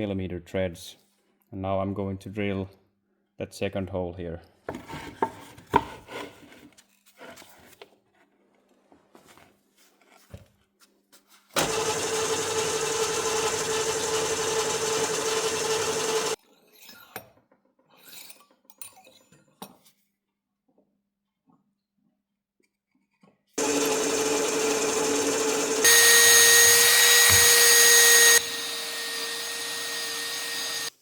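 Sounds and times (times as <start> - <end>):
electric drill whining: 11.6 - 16.4, 23.6 - 31.0.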